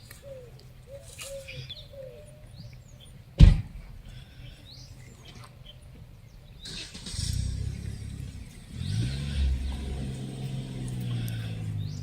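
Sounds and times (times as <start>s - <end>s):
loud thump: 3.4s - 3.7s.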